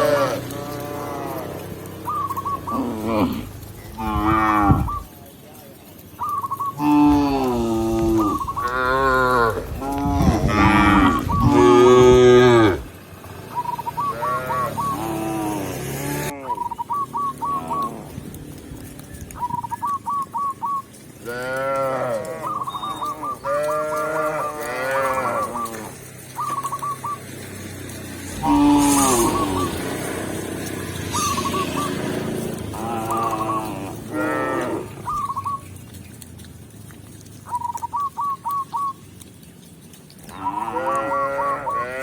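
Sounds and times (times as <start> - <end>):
cattle mooing: 0.0 - 5.1, 6.8 - 13.0, 14.0 - 16.6, 17.3 - 18.3, 21.2 - 26.6, 28.3 - 30.4, 31.2 - 35.2, 40.3 - 42.0.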